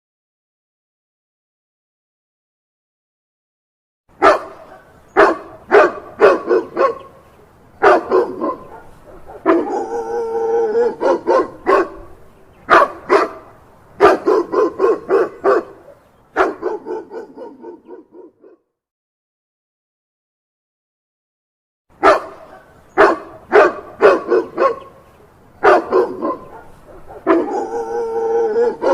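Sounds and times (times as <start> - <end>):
dog barking: 4.2 - 7.2, 7.8 - 18.6, 22.0 - 25.0, 25.6 - 28.9.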